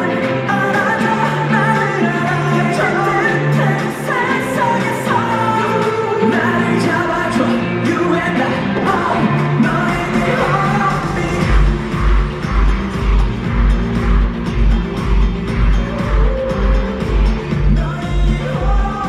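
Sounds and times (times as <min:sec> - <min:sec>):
man singing: 0:00.0 - 0:12.6, 0:15.8 - 0:19.0
pop backing track: 0:00.0 - 0:19.0
deep pulsing bass beat: 0:08.6 - 0:19.0.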